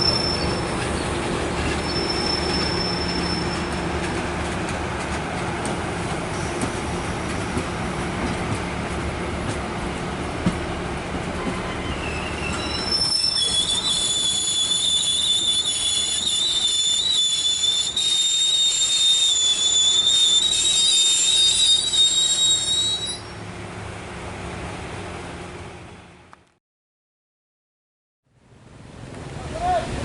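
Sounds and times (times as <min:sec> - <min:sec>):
train wheels squealing: 0:00.0 - 0:04.2, 0:11.4 - 0:23.4
low rumble of rolling train: 0:00.0 - 0:26.6, 0:28.3 - 0:30.0.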